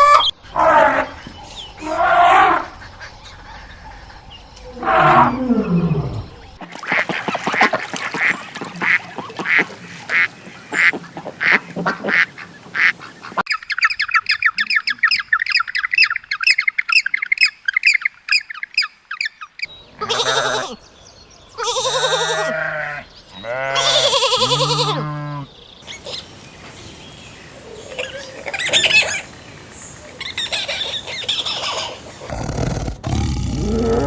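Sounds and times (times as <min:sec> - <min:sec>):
ducks quacking: 0:00.0 - 0:13.4.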